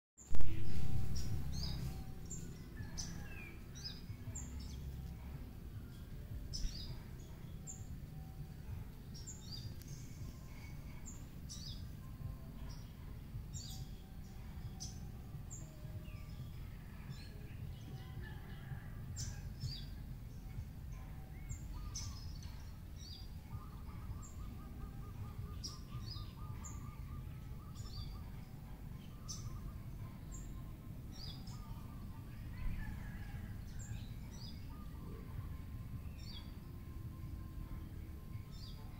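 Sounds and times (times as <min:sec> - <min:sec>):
birds chirping: 0:00.2 - 0:38.9
low rumble: 0:00.3 - 0:18.2.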